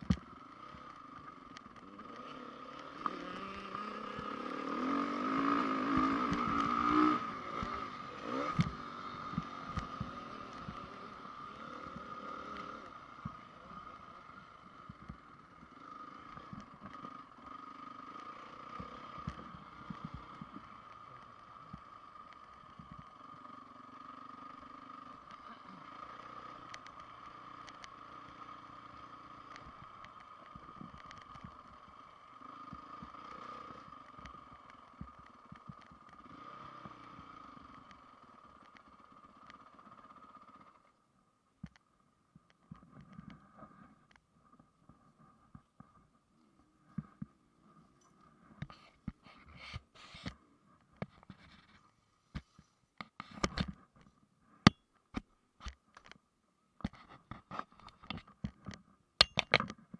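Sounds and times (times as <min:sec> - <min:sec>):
motocross bike engine revving: 0:00.0 - 0:40.8.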